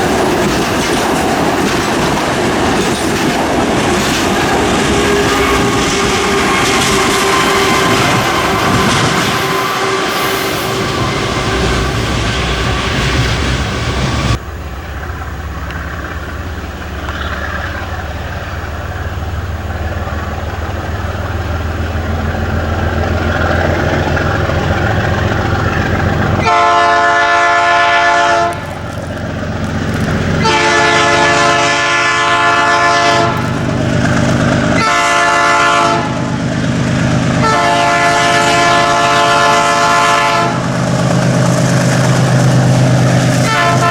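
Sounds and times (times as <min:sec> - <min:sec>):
diesel train engine rumble: 0:00.0 - 0:43.9.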